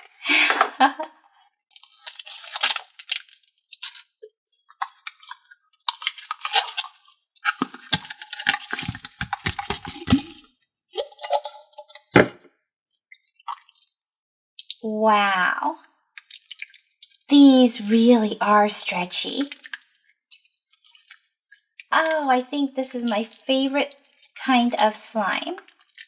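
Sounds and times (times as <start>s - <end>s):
plastic jar lids clicking and rattling: 7.5s - 12.1s.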